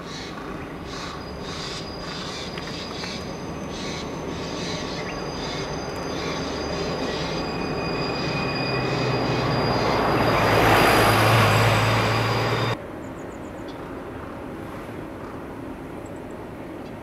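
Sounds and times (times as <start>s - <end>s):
faint outdoor noise: 0.0s - 17.0s
train rumble and low hum: 0.0s - 17.0s
train wheels squealing: 0.8s - 12.8s.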